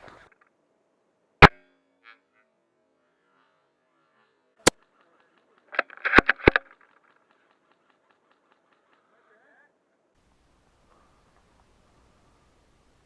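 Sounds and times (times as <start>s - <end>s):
airsoft rifle shot crack: 1.4s - 1.8s, 4.6s - 6.8s
rifle bolt clicks and rattle: 5.6s - 7.7s.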